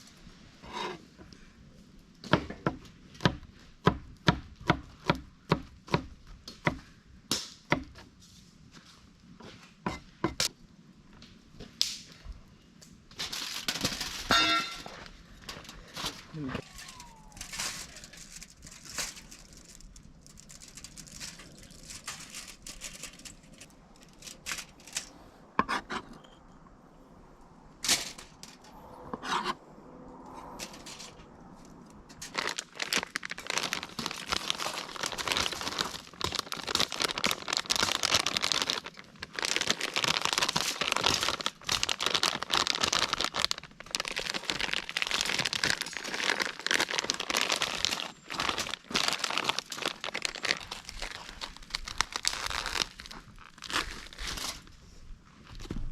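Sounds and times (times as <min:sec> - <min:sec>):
packaging crinkling and tearing: 0:13.2 - 0:15.0, 0:15.6 - 0:25.1, 0:32.1 - 0:54.8.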